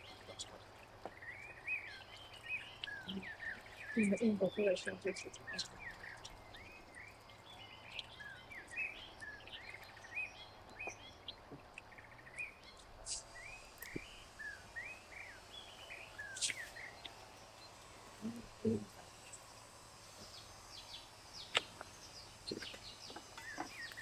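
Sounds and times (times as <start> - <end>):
small birds chirping: 0.0 - 24.0
faint clicks: 21.5 - 24.0.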